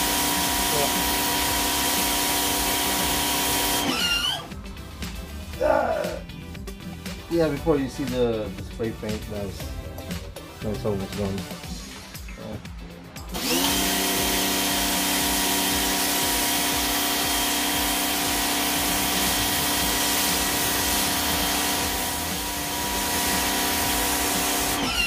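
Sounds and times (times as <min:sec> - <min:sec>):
water jet hissing on concrete: 0:00.0 - 0:04.1, 0:13.6 - 0:24.9
pressure washer motor whining: 0:00.0 - 0:04.6, 0:13.3 - 0:25.0.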